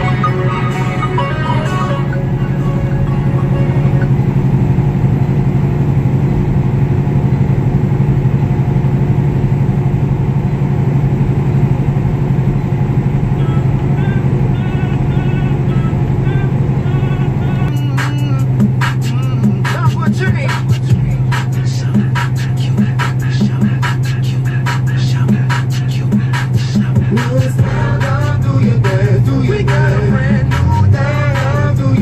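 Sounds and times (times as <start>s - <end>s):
road noise: 0.0s - 32.0s
truck engine drone: 0.0s - 32.0s.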